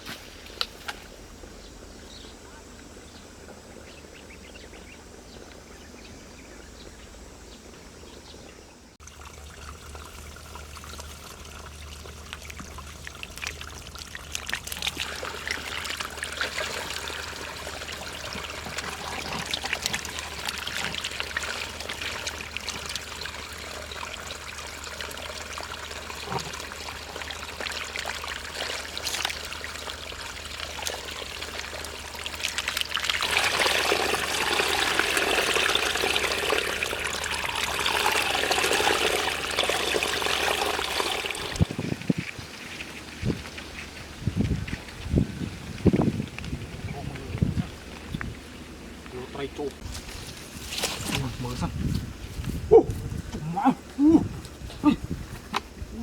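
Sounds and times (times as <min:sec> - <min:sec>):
shallow water trickling: 0:09.0 - 0:52.5.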